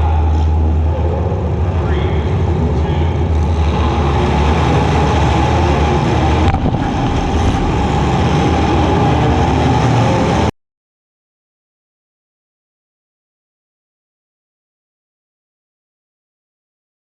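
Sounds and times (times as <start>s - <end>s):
car engine running: 0.0s - 10.5s.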